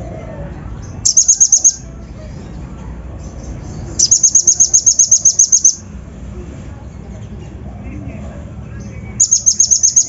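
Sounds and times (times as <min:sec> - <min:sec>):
bird singing sharp high chips: 0:01.0 - 0:01.9, 0:03.3 - 0:05.9, 0:09.2 - 0:10.0.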